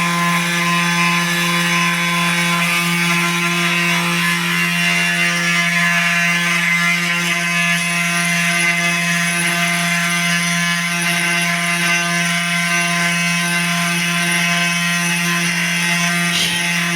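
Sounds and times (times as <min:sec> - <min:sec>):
spindle motor whine: 0:14.4 - 0:16.9
axis motor tone: 0:15.7 - 0:16.9.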